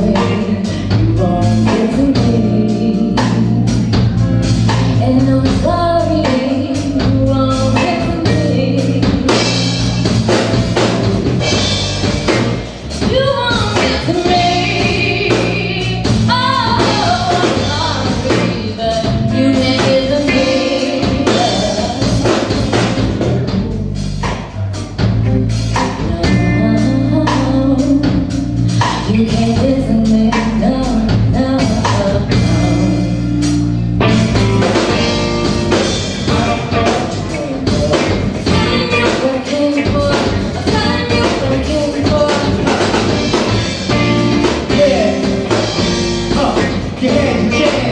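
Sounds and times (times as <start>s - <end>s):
person singing: 0.0s - 10.0s, 13.0s - 24.9s, 34.4s - 47.9s
bass: 0.0s - 47.9s
drum kit: 0.0s - 47.9s
guitar: 0.0s - 47.9s.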